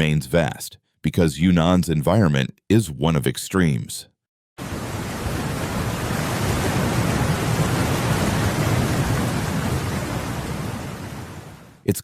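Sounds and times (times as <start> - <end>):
steady rushing noise: 4.6 - 11.7.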